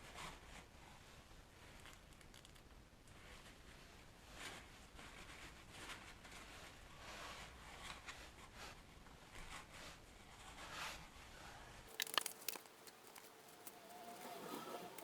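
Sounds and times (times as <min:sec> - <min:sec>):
rustling and crinkling handling: 0:11.9 - 0:15.0.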